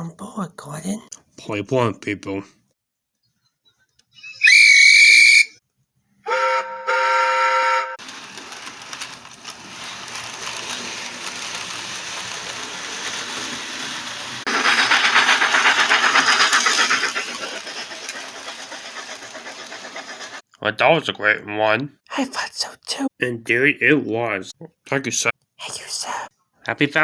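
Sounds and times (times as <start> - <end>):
deep chord whistle blasts: 4.4 - 5.6, 6.2 - 8.0
high steam train whistle: 4.4 - 5.6, 6.2 - 8.0
steam train chuffing: 6.3 - 20.4.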